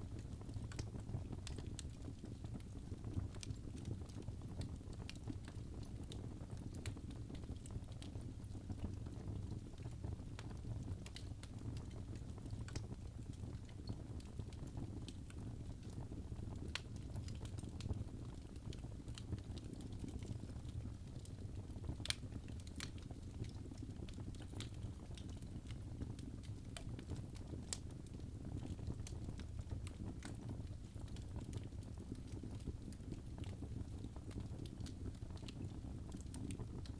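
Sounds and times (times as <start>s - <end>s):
fire crackling and popping: 0.0s - 36.9s
fire rumbling in fireplace: 0.0s - 36.9s.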